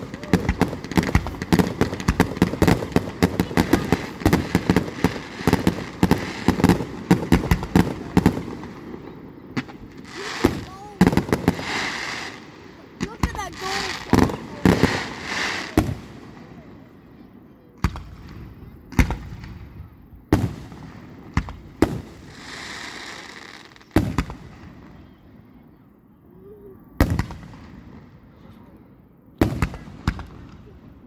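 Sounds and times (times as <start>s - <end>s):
fireworks booming overhead: 0.0s - 25.7s, 27.0s - 31.0s
crackling hiss of fireworks: 0.0s - 31.0s.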